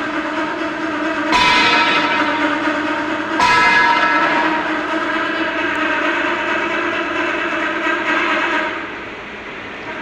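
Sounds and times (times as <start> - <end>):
steady ringing hum: 0.0 - 10.0.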